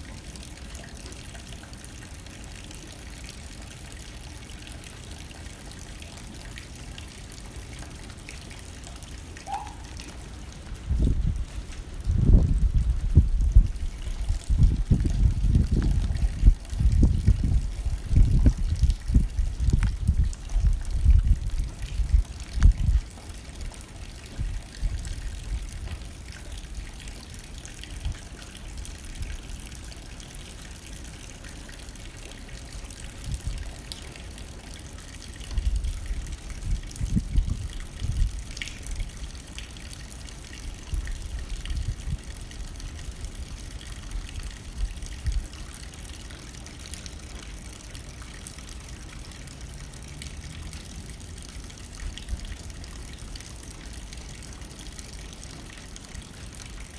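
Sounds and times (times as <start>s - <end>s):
rain hitting a window: 0.0s - 56.9s
wind gusts: 9.5s - 26.8s, 35.5s - 39.1s.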